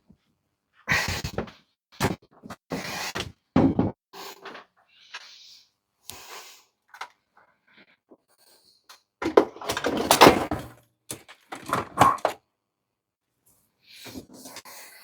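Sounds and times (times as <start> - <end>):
objects knocking and clattering: 3.6 - 4.6, 9.2 - 12.4.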